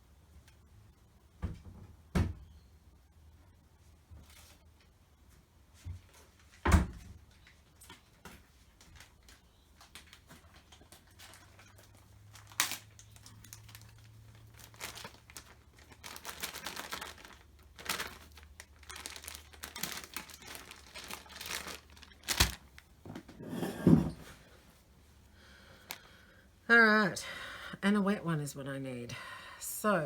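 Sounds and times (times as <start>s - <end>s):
plastic packet crinkling: 8.9s - 23.0s.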